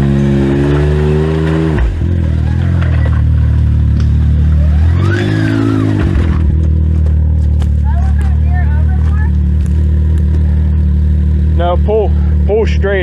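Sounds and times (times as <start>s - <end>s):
utility vehicle engine revving: 0.0s - 13.0s.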